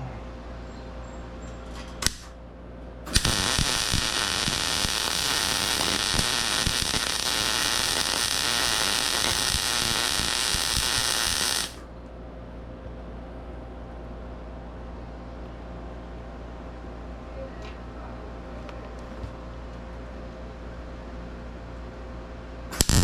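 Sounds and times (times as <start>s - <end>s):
welding arc crackling: 2.0s - 2.3s, 3.1s - 11.8s, 22.8s - 23.0s
sharp click: 2.0s - 2.4s.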